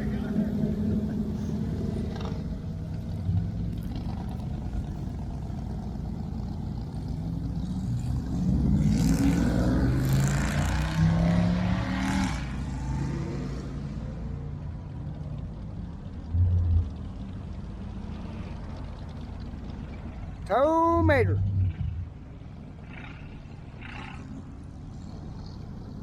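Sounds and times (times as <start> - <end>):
car engine revving hard: 8.3 - 13.6.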